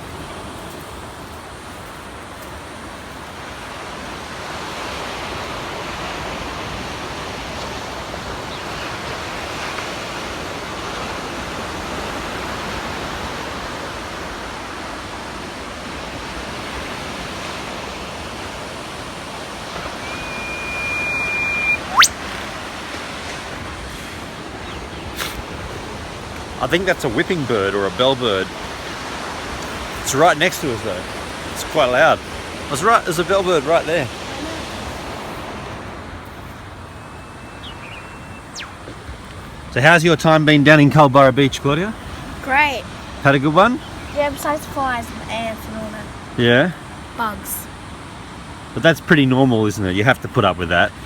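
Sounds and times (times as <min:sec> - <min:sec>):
ocean surf washing: 0:00.0 - 0:51.0
bird whistle and whip-crack call: 0:19.8 - 0:22.3, 0:37.2 - 0:39.0.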